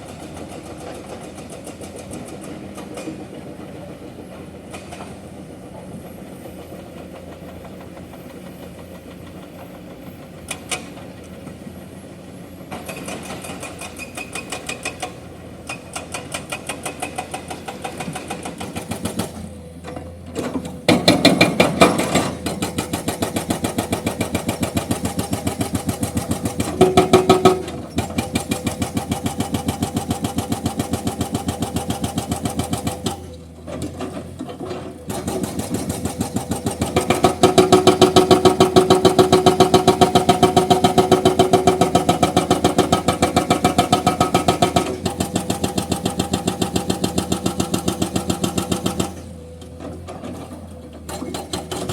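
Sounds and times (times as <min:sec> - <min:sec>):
excavator engine running: 0:00.0 - 0:51.9
hydraulic breaker hammering rock: 0:12.7 - 0:51.9.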